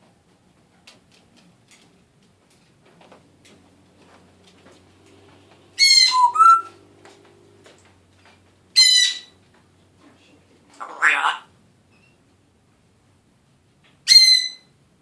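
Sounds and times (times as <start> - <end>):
parrot scratchy calls: 5.8 - 6.8, 8.7 - 9.4, 10.7 - 12.1.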